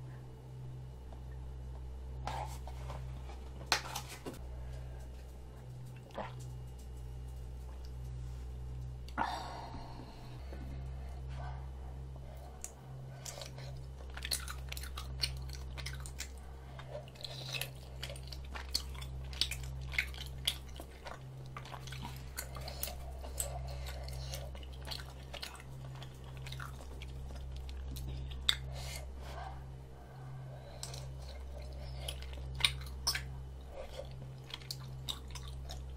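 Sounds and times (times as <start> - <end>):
low hum: 0.0 - 35.9
chewing with wet mouth clicks: 12.4 - 28.8, 30.6 - 35.9.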